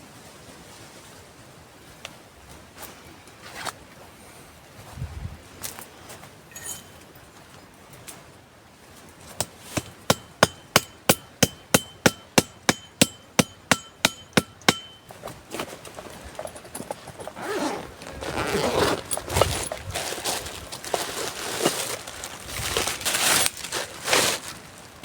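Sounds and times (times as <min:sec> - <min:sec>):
rustling and crunching: 0:09.0 - 0:25.0
metal tool striking wood: 0:09.4 - 0:15.3.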